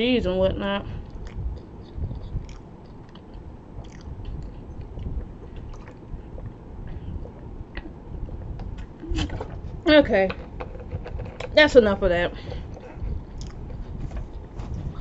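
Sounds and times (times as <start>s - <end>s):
wet mouth clicks: 1.0s - 9.6s, 12.7s - 13.9s
person chewing: 1.0s - 9.7s, 12.4s - 15.0s.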